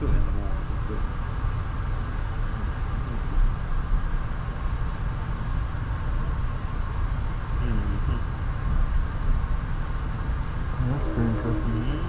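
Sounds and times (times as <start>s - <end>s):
train rumbling on track: 8.5s - 12.0s.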